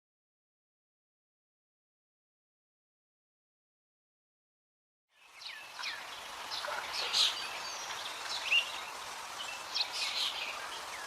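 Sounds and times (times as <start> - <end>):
birds chirping and calling: 5.2 - 11.0
steady background hiss: 5.2 - 11.0.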